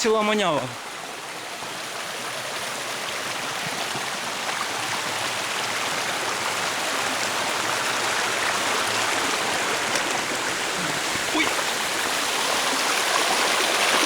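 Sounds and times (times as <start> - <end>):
rushing water of waterfall: 0.0 - 14.0.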